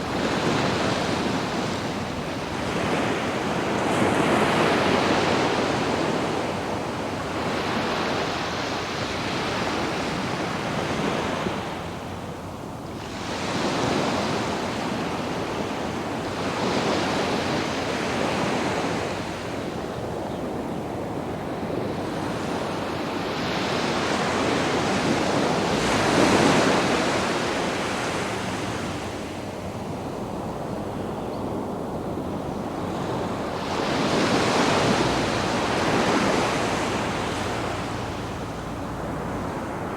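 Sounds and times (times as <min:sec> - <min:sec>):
waves breaking on beach: 0:00.0 - 0:39.9
wind buffeting microphone: 0:00.0 - 0:39.9.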